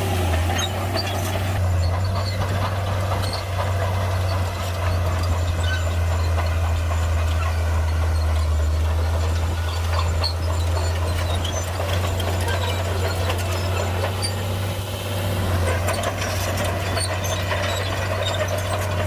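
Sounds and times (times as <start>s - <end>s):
bulldozer diesel engine droning: 0.0s - 19.0s
machine squeaks and clanks: 0.0s - 19.0s.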